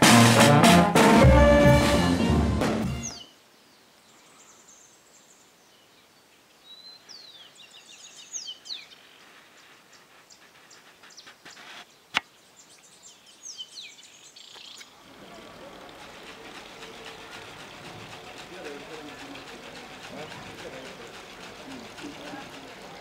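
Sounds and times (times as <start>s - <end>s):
music with drums: 0.0s - 3.2s
birds chirping: 2.8s - 23.0s.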